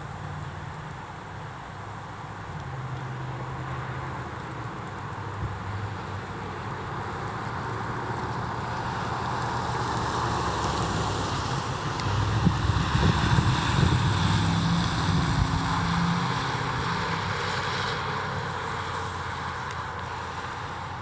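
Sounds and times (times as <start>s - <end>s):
tyre noise on road: 0.0s - 21.0s
truck engine hum: 3.3s - 21.0s.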